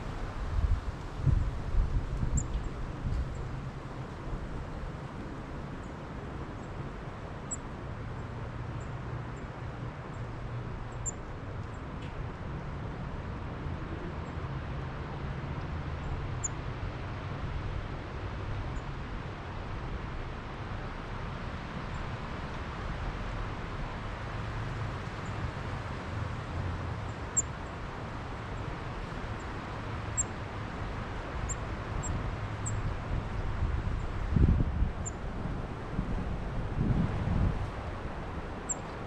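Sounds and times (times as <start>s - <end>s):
wind rumbling on microphone: 0.0s - 5.0s, 31.0s - 39.0s.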